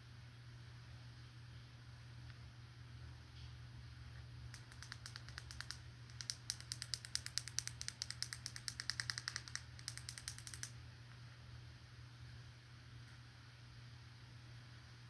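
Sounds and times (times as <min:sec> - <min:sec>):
rapid crisp tapping clicks: 0:04.5 - 0:10.8.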